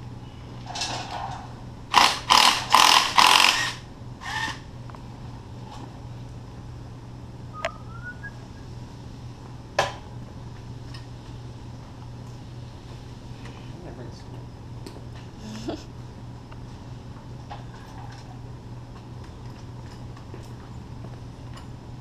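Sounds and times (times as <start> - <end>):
impact wrench bursts: 1.9 - 4.6.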